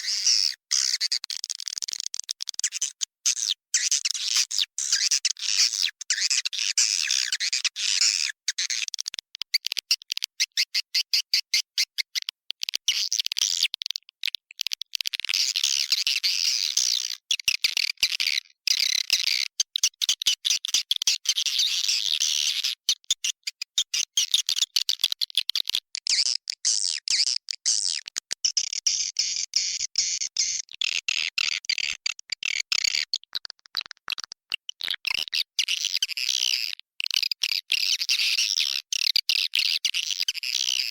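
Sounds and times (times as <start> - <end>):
rapid clicking chatter: 1.0 - 3.0.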